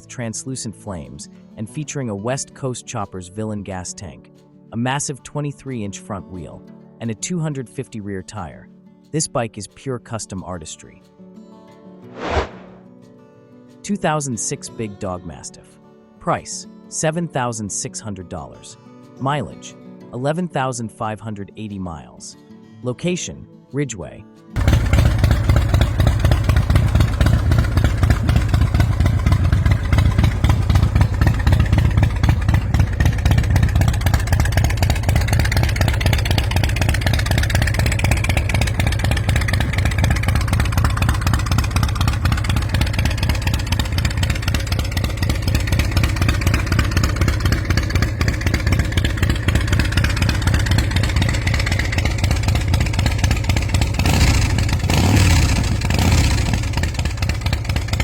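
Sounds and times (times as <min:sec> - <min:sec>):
motorcycle engine running: 0:24.6 - 0:58.0.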